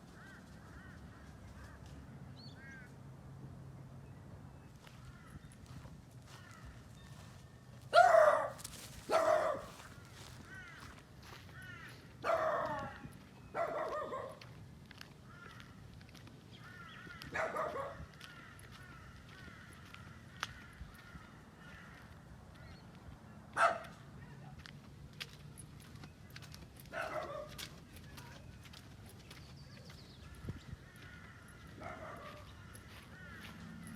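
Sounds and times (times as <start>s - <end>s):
small birds chirping: 4.7s - 7.4s, 25.2s - 33.9s.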